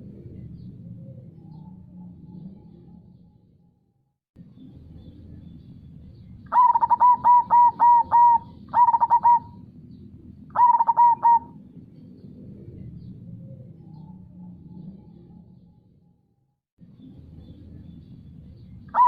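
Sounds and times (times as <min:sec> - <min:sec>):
dove cooing: 0:06.5 - 0:09.7, 0:10.5 - 0:11.7.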